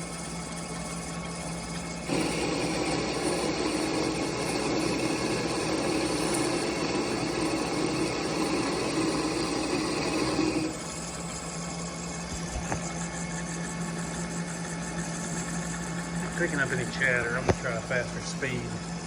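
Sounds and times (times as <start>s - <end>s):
lathe cutting tool cutting: 0.0s - 12.5s
lathe motor hum: 0.0s - 19.0s.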